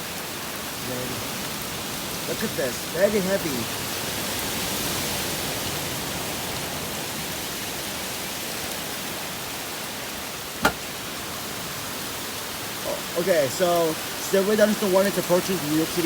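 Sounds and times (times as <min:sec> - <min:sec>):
heavy rain pouring: 0:00.0 - 0:16.0
sharp knock: 0:10.6 - 0:10.9.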